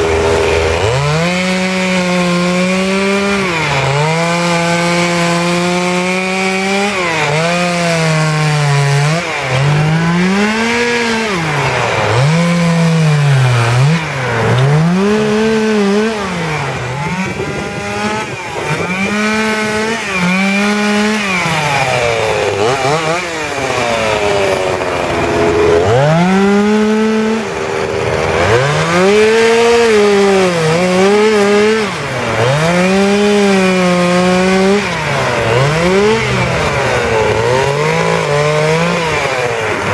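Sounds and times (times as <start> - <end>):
chainsaw revving while carving wood: 0.0 - 39.9.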